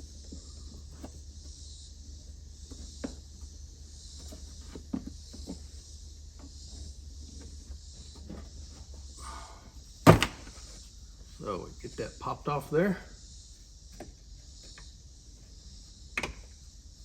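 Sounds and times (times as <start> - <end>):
steady high hiss: 8.7 - 17.0.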